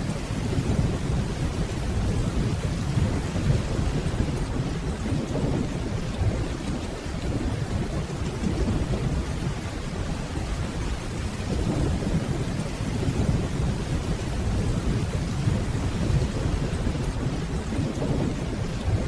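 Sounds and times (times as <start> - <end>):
rainfall: 0.0 - 19.0.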